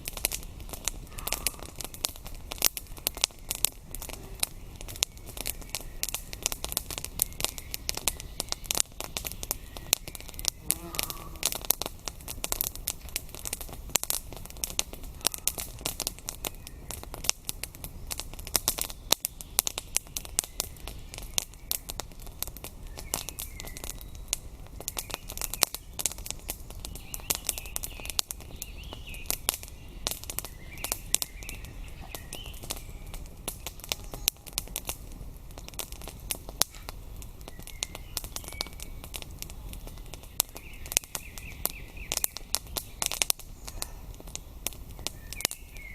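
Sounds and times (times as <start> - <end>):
campfire crackling and popping: 0.0 - 45.9
faint birds chirping: 0.2 - 45.9.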